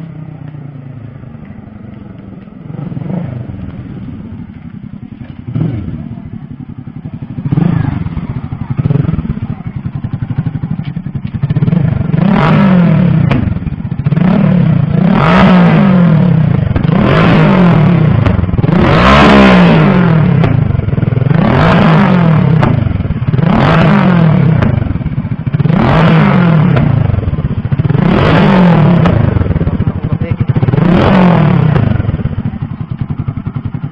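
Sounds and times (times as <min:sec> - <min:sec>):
car exhaust revving: 0:00.8 - 0:33.9
exhaust backfire pops: 0:12.3 - 0:13.8, 0:16.5 - 0:33.3.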